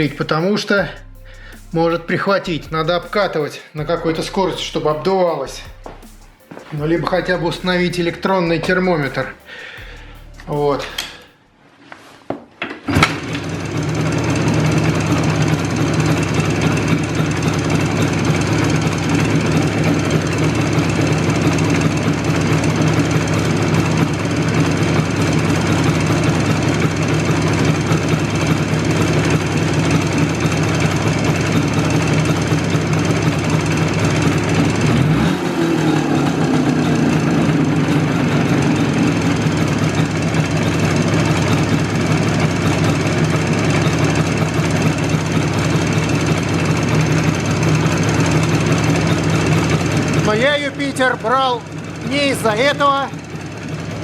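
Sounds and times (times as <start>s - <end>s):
engine clunk: 5.6s - 11.3s, 12.6s - 54.0s
two-stroke engine knocking: 12.9s - 54.0s.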